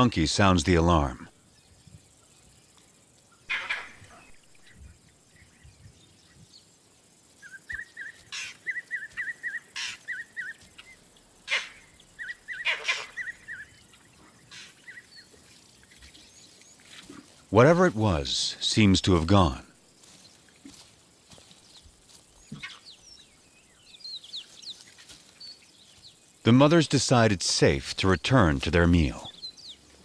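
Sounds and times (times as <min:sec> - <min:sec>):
monkey barking alarm calls: 0:03.5 - 0:04.4, 0:07.4 - 0:15.1.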